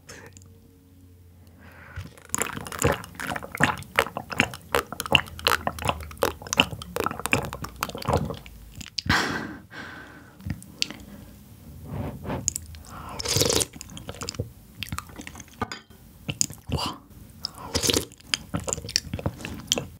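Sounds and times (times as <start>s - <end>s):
wet squishy chewing: 1.9s - 9.1s, 10.4s - 11.2s, 12.2s - 15.6s, 16.2s - 19.9s.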